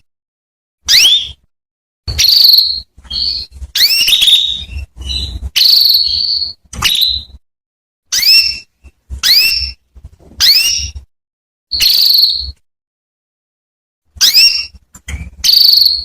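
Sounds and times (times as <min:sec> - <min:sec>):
canary chirping: 0:00.8 - 0:01.5, 0:02.1 - 0:07.4, 0:08.1 - 0:11.1, 0:11.7 - 0:12.6, 0:14.2 - 0:16.0.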